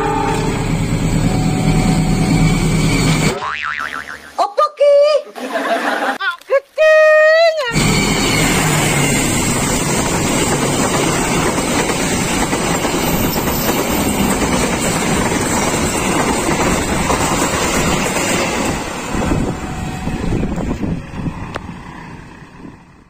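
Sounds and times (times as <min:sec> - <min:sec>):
diesel train passing: 0:00.0 - 0:03.4, 0:07.7 - 0:23.0
wheels rumbling on rails: 0:07.7 - 0:23.0.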